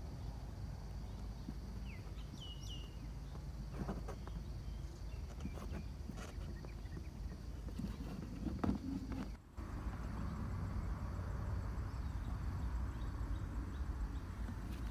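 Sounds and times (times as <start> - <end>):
outdoor background noise: 0.0 - 14.9
bird chirps: 1.1 - 3.4.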